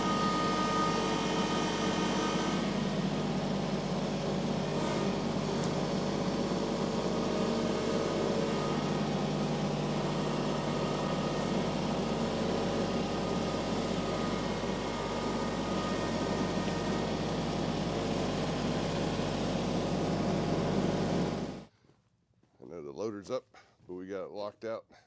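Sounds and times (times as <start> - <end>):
tractor engine running: 0.0 - 21.7.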